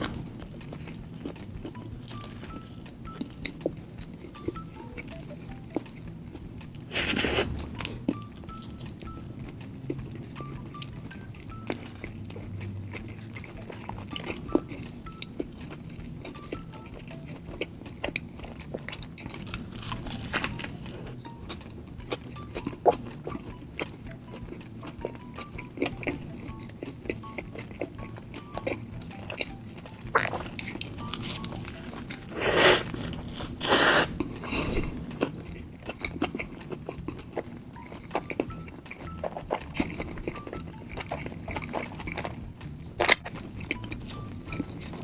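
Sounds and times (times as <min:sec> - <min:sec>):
chewing and biting food: 0:00.0 - 0:45.0
wet mouth clicks: 0:11.1 - 0:45.0.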